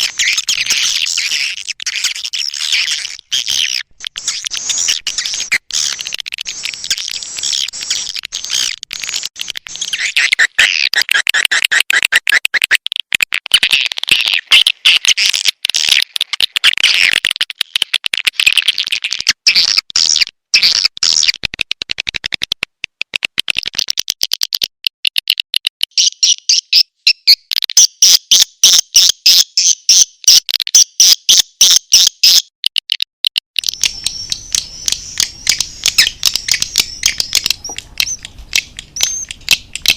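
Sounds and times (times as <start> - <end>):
swiftlets twittering and chirping: 0.0 - 12.8, 25.9 - 32.5, 33.6 - 39.9.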